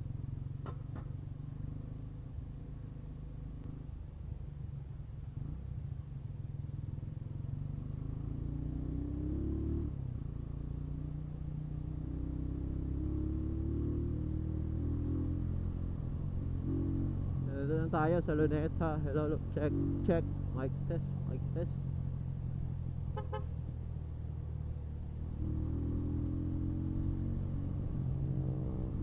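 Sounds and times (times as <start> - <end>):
motorcycle engine accelerating: 6.8 - 29.0.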